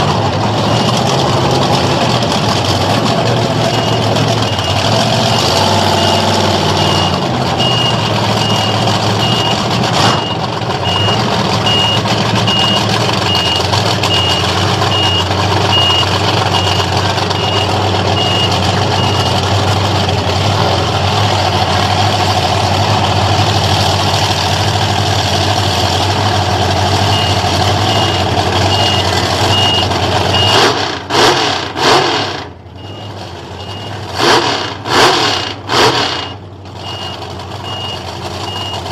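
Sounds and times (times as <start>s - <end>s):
heavy vehicle engine running: 0.0s - 38.9s
reversing alarm beeping: 3.6s - 19.5s, 27.0s - 30.7s, 32.8s - 34.1s, 36.0s - 38.9s.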